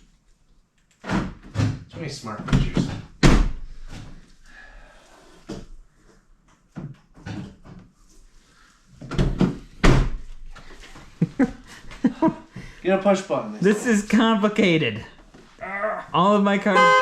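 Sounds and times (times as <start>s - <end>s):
truck door clicks and knocks: 2.5s - 3.6s
truck door slamming shut: 2.5s - 3.6s.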